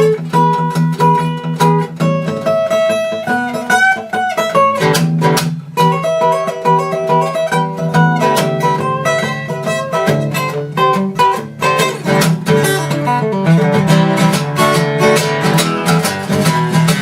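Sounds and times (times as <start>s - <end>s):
acoustic guitar strumming and picking: 0.0s - 17.0s.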